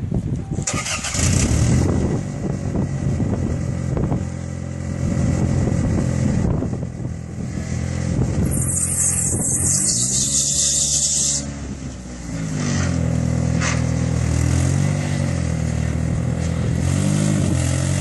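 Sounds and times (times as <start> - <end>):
car engine running: 1.3 - 14.5.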